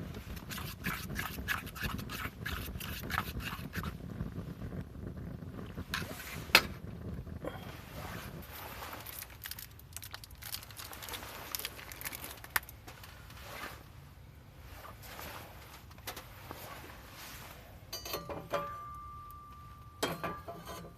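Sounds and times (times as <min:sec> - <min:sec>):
sharp pops from fire: 0:00.0 - 0:07.4
wood fire crackling: 0:00.0 - 0:20.9.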